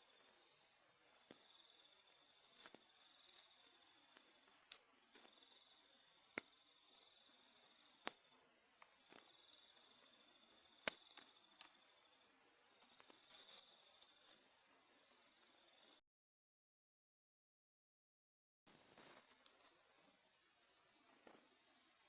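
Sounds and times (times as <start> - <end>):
insects trilling: 0.0 - 14.4
sharp clicks: 10.8 - 11.8.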